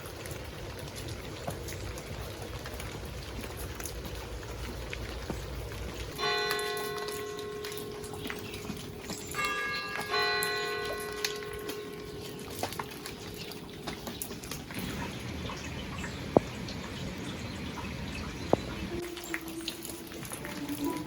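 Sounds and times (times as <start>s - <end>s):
water dripping and trickling: 0.0s - 21.0s
church bells ringing: 6.2s - 13.4s.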